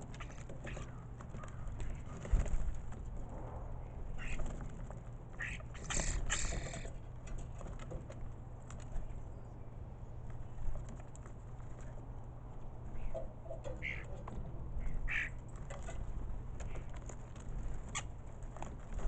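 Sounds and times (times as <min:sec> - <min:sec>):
starlings rasping calls: 0:05.4 - 0:07.0, 0:13.0 - 0:14.2, 0:14.8 - 0:15.4.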